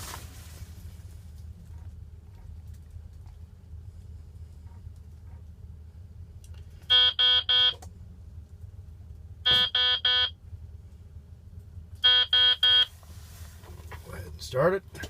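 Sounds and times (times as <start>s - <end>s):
low steady hum: 0.0s - 15.0s
electronic warning beeps: 6.9s - 7.8s, 9.5s - 10.4s, 12.0s - 12.9s.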